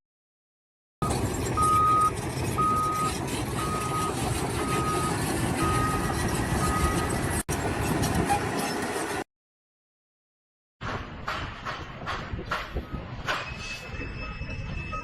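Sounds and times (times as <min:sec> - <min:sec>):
reversing alarm beeping: 0:01.0 - 0:07.3, 0:12.8 - 0:15.0
low engine rumble: 0:01.0 - 0:08.5.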